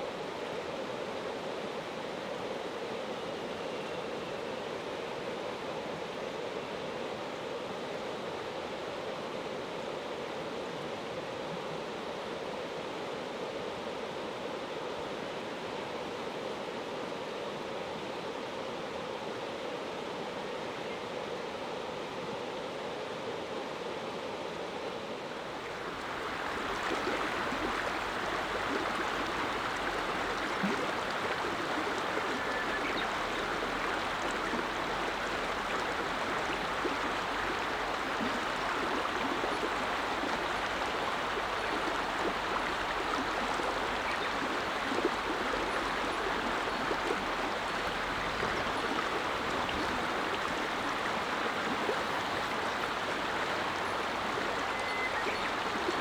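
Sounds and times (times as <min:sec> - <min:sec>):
river flowing over stones: 0:25.5 - 0:56.0.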